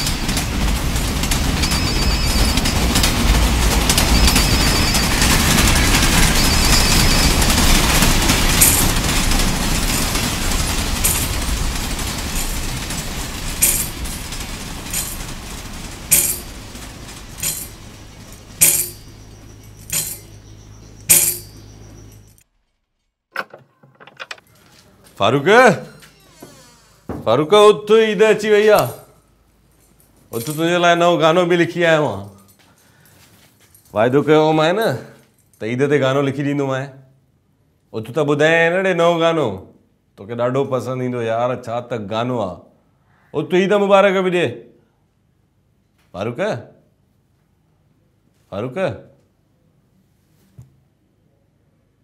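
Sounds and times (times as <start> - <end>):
train rumbling: 0.0 - 22.3
sharp metallic clinks: 6.3 - 22.4.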